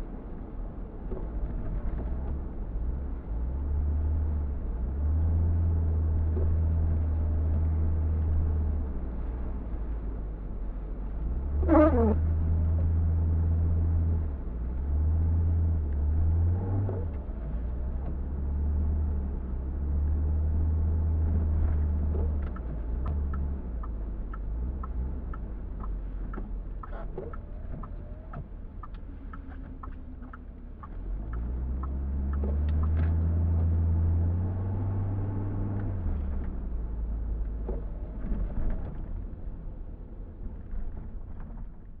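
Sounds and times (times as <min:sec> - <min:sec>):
car engine running: 0:16.9 - 0:42.0
light regular ticking: 0:22.4 - 0:33.0.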